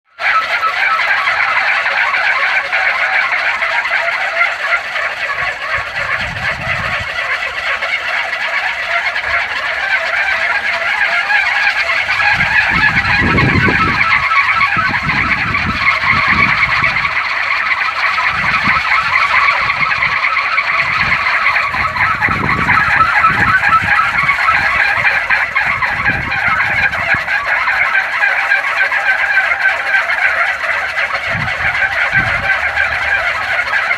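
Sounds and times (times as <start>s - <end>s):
wind propeller whirring: 4.2s - 33.9s
wind buffeting microphone: 5.0s - 8.0s, 8.8s - 28.0s, 30.8s - 33.9s.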